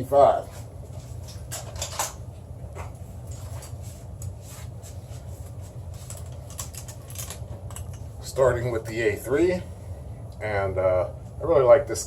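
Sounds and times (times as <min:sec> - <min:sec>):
steady low hum: 0:00.0 - 0:12.0
faint handling clicks and rustles: 0:00.4 - 0:08.2.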